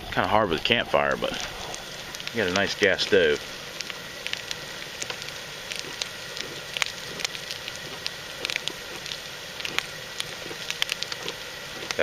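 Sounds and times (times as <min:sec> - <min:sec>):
coffee percolator popping: 0:00.0 - 0:12.0
gas burner hissing: 0:00.0 - 0:12.0.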